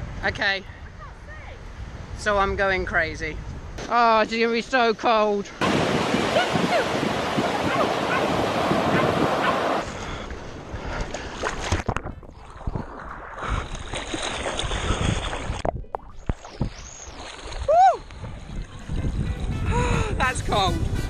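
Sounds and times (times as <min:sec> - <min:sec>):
sea surf breaking: 0:05.6 - 0:10.8
wind buffeting microphone: 0:05.6 - 0:16.9, 0:17.6 - 0:21.0.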